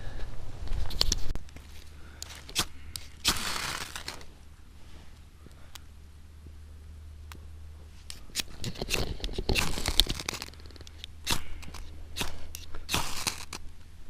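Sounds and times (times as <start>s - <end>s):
faint low hum: 0.0s - 14.0s
dry bark crackling and tearing: 1.0s - 4.3s, 8.1s - 13.7s.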